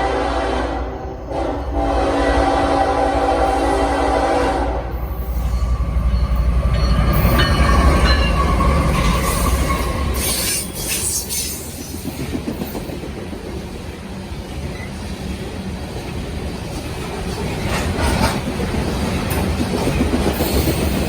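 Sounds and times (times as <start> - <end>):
diesel locomotives rumbling past: 0.0 - 21.0
wheel squeal: 5.2 - 11.6
rail clatter from wheels: 5.3 - 13.8, 14.6 - 21.0.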